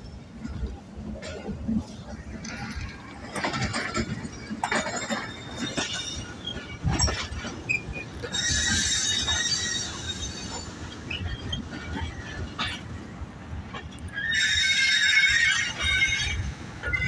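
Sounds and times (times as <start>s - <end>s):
train coaches clanking and rattling: 0.0s - 17.0s
high-pitched wheel squeal: 5.0s - 11.9s, 14.1s - 17.0s.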